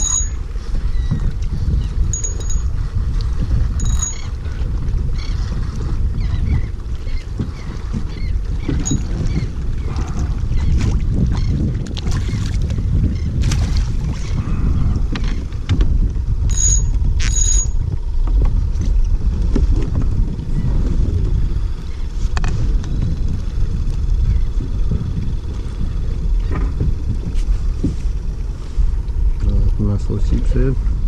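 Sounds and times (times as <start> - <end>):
high metallic rings: 0.0 - 0.5, 2.1 - 2.8, 3.8 - 4.4, 8.8 - 9.2, 16.5 - 17.8
wind buffeting microphone: 0.0 - 31.0.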